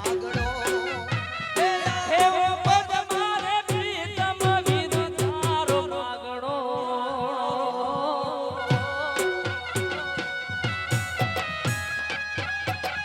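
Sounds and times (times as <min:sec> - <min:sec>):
wavering melody: 0:00.0 - 0:02.4, 0:09.2 - 0:12.1
regular drum beats: 0:00.0 - 0:13.0.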